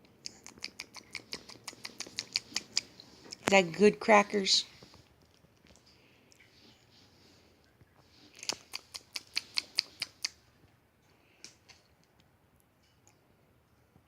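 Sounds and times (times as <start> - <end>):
sharp clicks: 0.2 - 3.6, 8.4 - 10.4.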